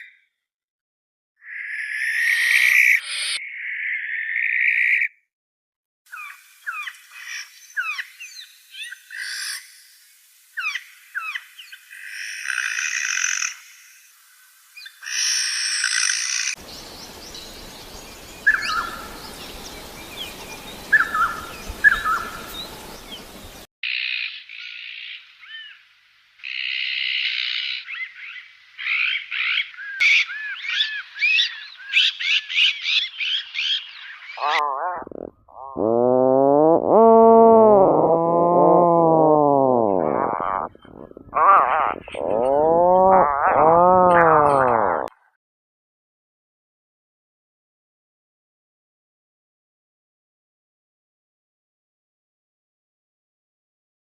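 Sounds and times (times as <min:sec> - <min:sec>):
bird calls and songs: 0:01.4 - 0:05.2, 0:06.1 - 0:10.0, 0:10.6 - 0:25.8, 0:26.4 - 0:34.6
steady hiss: 0:16.6 - 0:23.7.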